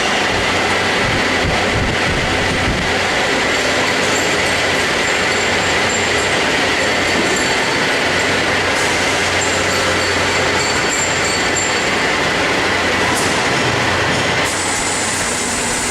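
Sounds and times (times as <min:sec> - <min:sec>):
welding machine hissing: 0:14.4 - 0:15.9.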